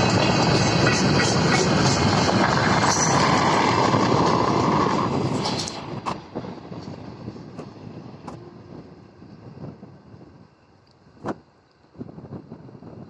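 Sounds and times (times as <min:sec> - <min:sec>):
freight train wagons rolling: 0:00.0 - 0:06.6.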